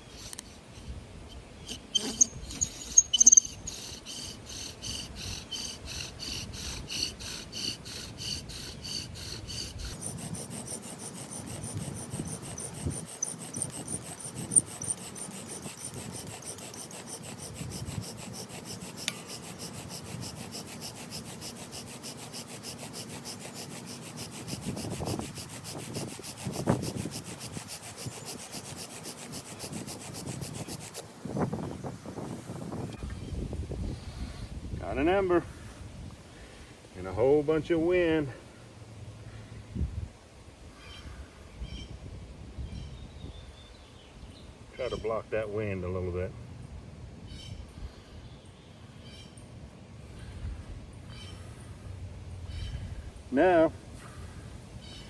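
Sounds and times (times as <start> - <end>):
bow drill rasping strokes: 0.0 - 0.9, 1.6 - 33.0.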